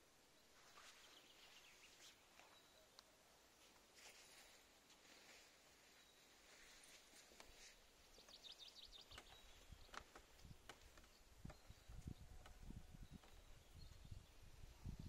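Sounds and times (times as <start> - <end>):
faint clicks: 8.2 - 12.6.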